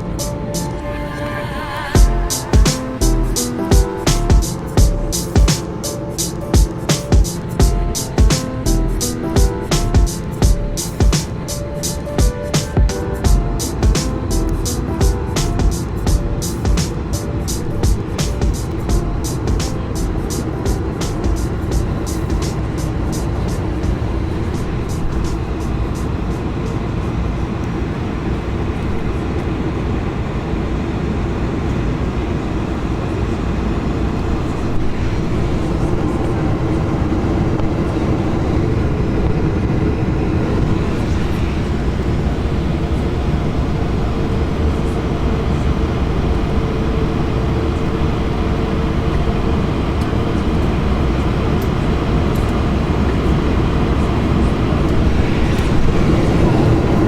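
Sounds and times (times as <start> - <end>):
airflow and engine roar: 0.0 - 57.0
steady hum: 0.0 - 57.0
low rumble: 0.8 - 5.3, 7.6 - 8.0, 8.7 - 11.0, 13.3 - 16.5, 18.8 - 22.2.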